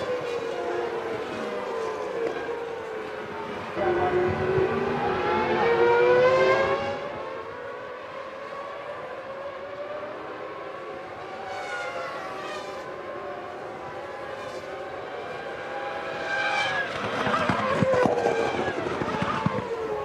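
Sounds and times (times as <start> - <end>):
race car engine whine: 0.0 - 20.0.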